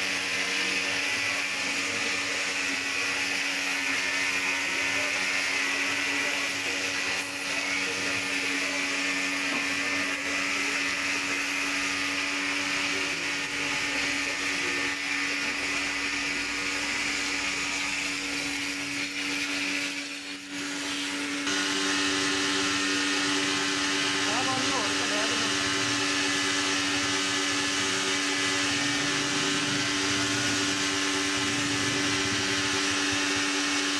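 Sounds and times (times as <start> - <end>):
motor-driven machine humming: 20.6 - 33.9.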